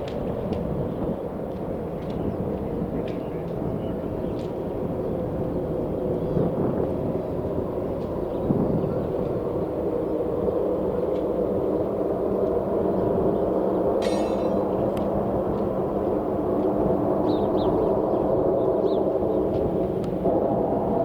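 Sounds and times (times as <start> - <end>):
sharp ringing: 14.0 - 14.8.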